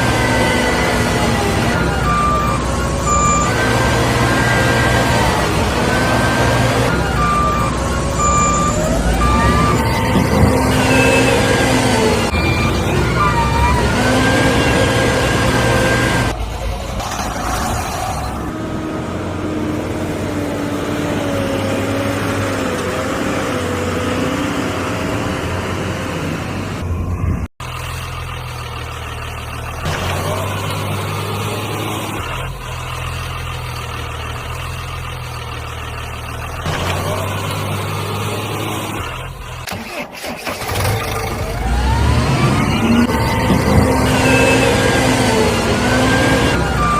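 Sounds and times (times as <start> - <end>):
vehicle engine running: 18.4 - 39.7.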